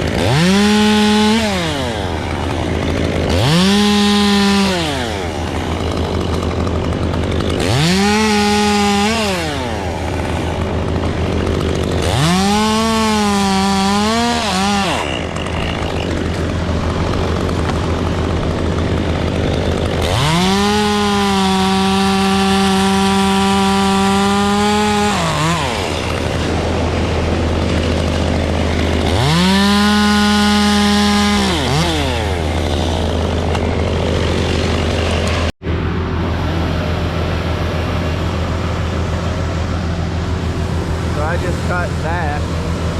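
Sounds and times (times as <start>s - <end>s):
chainsaw cutting wood: 0.0s - 35.6s, 36.2s - 42.9s
low drone: 32.3s - 42.9s.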